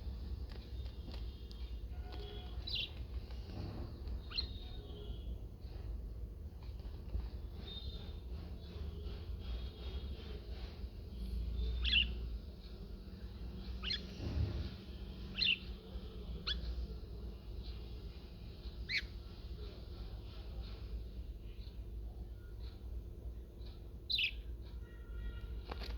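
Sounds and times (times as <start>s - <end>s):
budgerigar chirps: 18.9s - 19.1s.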